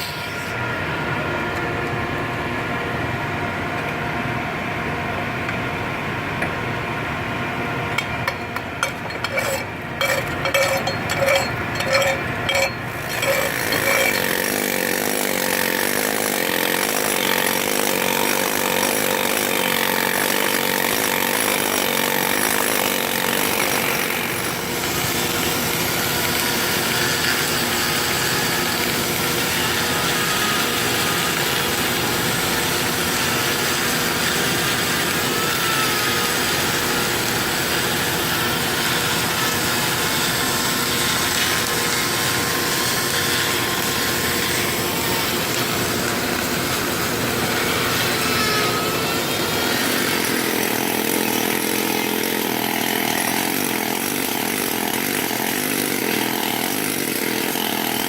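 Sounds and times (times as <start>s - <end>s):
machinery hum: 0.0s - 15.6s
sharp clicks and knocks: 8.0s - 14.3s.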